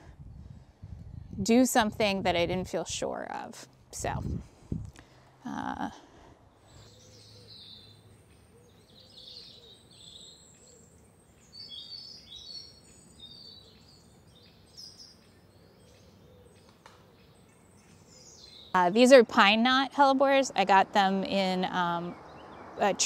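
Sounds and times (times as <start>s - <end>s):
faint outdoor background noise: 0.0s - 23.0s
songbirds chirping: 5.0s - 23.0s.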